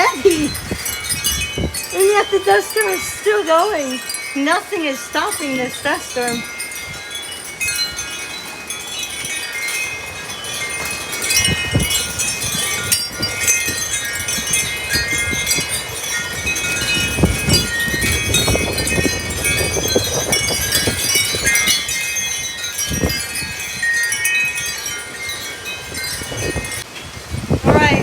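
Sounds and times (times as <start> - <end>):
wind buffeting microphone: 0.0 - 28.0
wind chimes jangling: 0.0 - 28.0.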